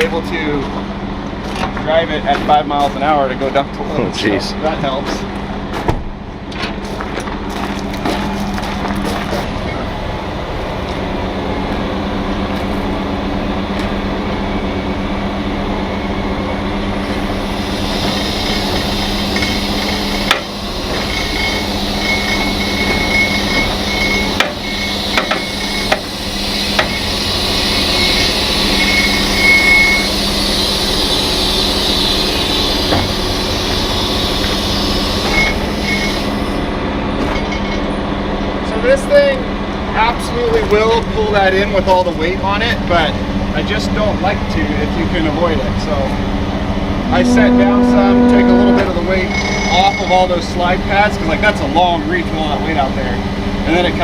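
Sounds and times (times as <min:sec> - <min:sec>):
diesel truck engine running: 0:00.0 - 0:54.0
hiss: 0:17.0 - 0:36.7.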